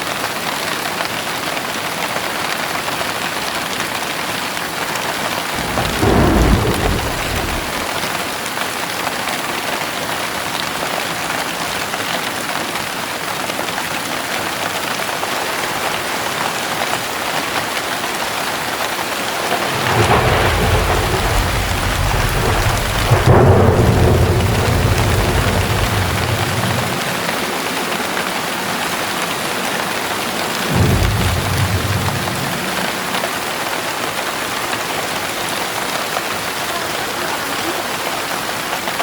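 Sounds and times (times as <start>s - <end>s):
heavy rain pouring: 0.0s - 39.0s
deep roll of thunder: 5.4s - 8.5s, 18.9s - 35.3s
thunderclap: 5.4s - 8.5s, 18.7s - 35.3s.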